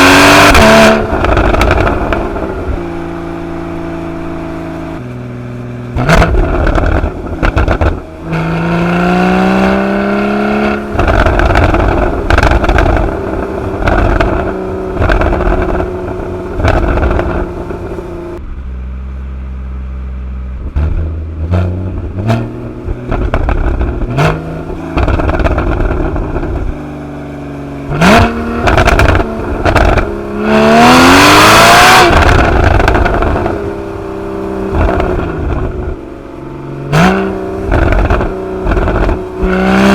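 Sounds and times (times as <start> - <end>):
exhaust pops and crackles: 0.0 - 2.9, 5.9 - 8.6, 10.6 - 18.4, 20.6 - 26.8, 27.9 - 36.0, 36.9 - 39.9
sports car engine accelerating: 0.0 - 39.9.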